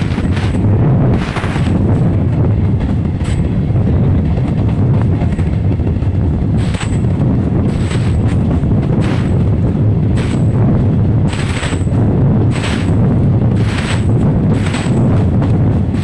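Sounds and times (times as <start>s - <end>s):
train rumbling at speed: 0.0s - 16.0s.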